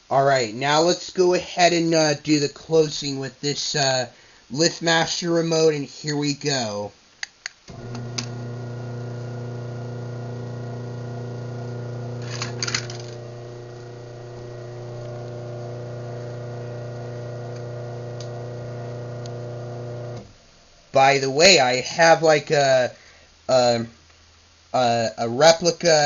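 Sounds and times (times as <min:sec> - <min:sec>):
opener start click: 0:07.7 - 0:10.3, 0:11.0 - 0:20.3
garage door opener motor humming: 0:07.7 - 0:20.4
rattle of clicks: 0:12.2 - 0:13.2.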